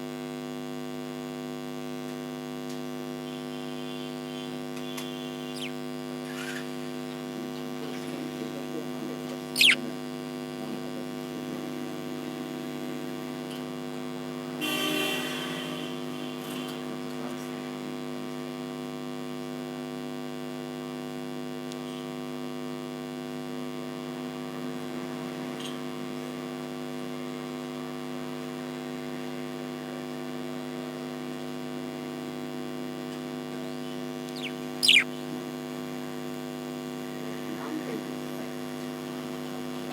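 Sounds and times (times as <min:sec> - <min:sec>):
electrical hum: 0:03.2 - 0:13.4, 0:33.6 - 0:36.2
high downward chirp: 0:09.6 - 0:09.8, 0:34.3 - 0:35.0.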